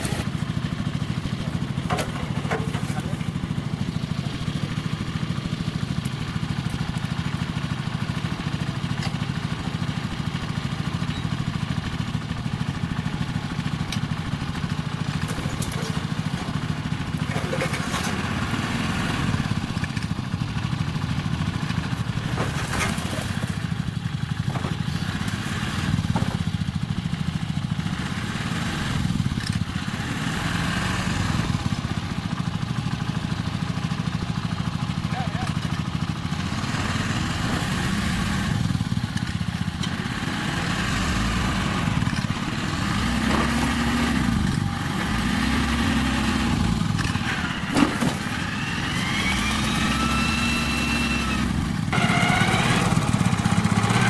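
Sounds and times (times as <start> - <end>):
small engine running: 27.8 - 54.0.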